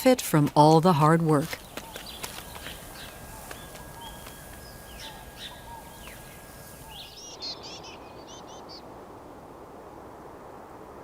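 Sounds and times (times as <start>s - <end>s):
steady background hiss: 0.6s - 11.0s
birds chirping: 0.7s - 8.9s.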